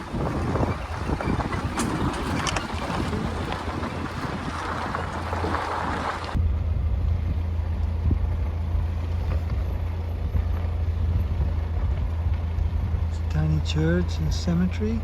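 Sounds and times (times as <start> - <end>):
rushing wind noise: 0.0 - 13.5
car driving on road: 0.0 - 15.0.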